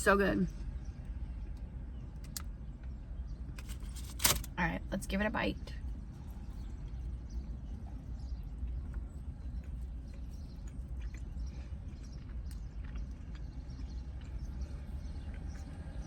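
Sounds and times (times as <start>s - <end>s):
steady low hum: 0.0s - 16.0s
person chewing food: 6.4s - 16.0s.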